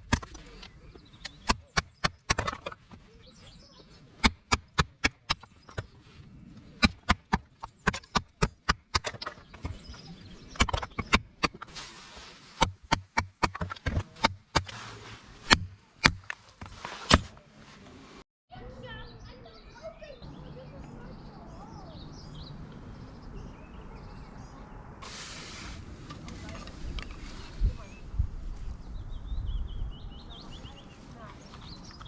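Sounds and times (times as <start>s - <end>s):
rustling: 0.0s - 18.2s, 25.0s - 28.8s.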